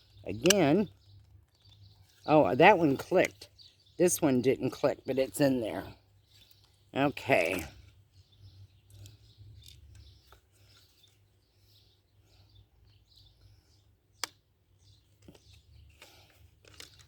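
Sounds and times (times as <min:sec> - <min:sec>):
handling small fan parts: 0:15.1 - 0:17.0.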